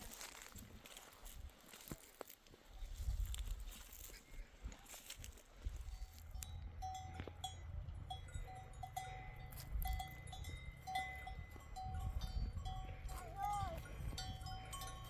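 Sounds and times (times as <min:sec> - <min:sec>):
livestock bells clinking: 0:05.8 - 0:15.0.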